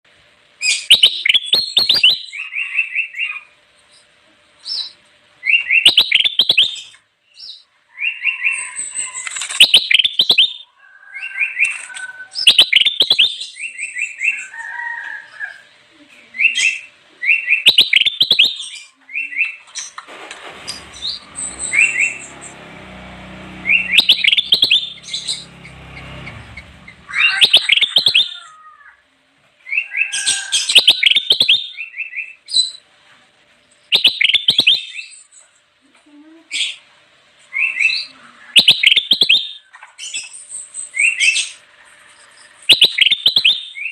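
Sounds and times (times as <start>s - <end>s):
bird chirping rapidly: 0.7s - 3.0s, 5.6s - 6.9s, 12.4s - 13.4s, 17.4s - 18.7s, 20.7s - 28.4s, 33.9s - 35.1s, 38.6s - 39.6s, 42.7s - 43.9s.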